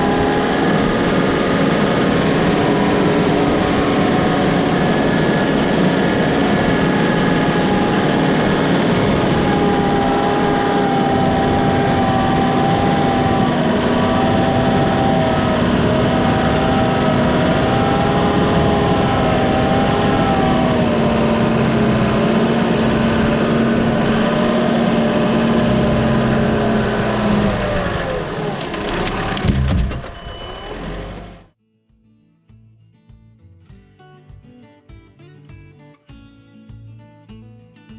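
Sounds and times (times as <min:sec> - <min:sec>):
chainsaw running at high revs: 0:00.0 - 0:28.0.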